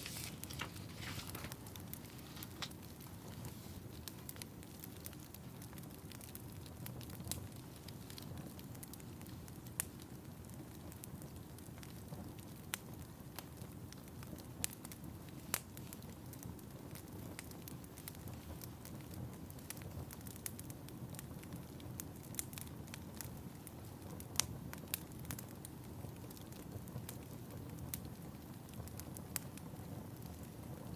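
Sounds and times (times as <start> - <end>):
fire crackling: 0.0 - 30.9
fire popping: 0.0 - 30.9.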